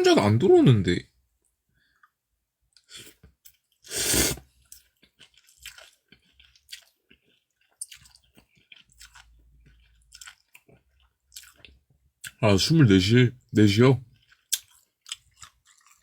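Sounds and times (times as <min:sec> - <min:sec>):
person chewing food: 0:01.8 - 0:12.4, 0:14.1 - 0:16.0.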